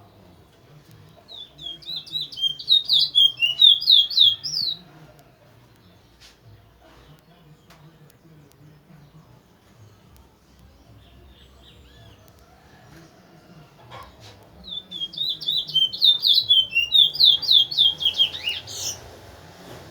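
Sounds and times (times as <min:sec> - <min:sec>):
bird singing whistled notes: 0:01.3 - 0:04.8, 0:14.6 - 0:19.0.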